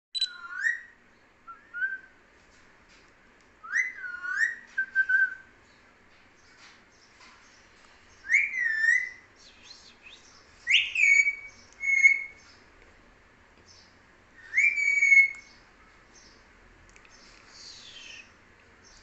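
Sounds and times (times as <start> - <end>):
parrot whistling: 0.2 - 0.9, 3.6 - 5.5, 8.3 - 9.2, 10.7 - 12.4, 14.4 - 15.4
parrot soft chirps: 0.2 - 1.0.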